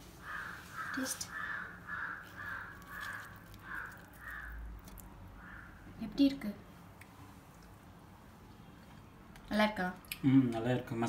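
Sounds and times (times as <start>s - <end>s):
bird calling: 0.1s - 5.9s.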